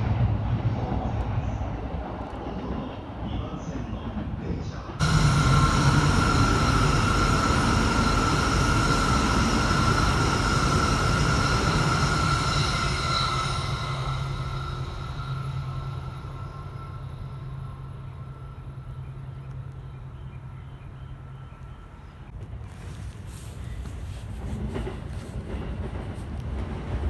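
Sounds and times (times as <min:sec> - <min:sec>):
high-speed train passing: 0:00.0 - 0:27.0.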